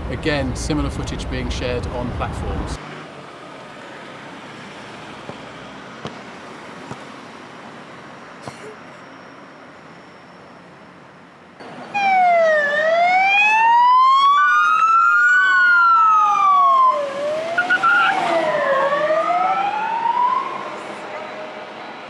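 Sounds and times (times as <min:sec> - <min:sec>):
faint steady background noise: 0:00.0 - 0:17.0
emergency sirens wailing: 0:11.9 - 0:22.0.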